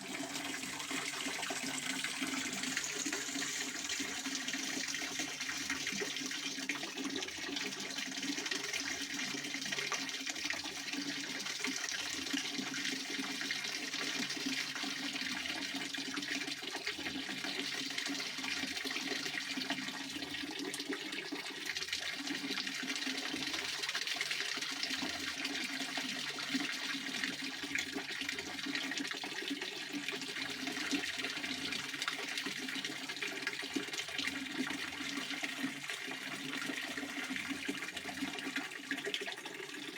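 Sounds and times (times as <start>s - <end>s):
fountain water splashing: 0.0s - 5.7s.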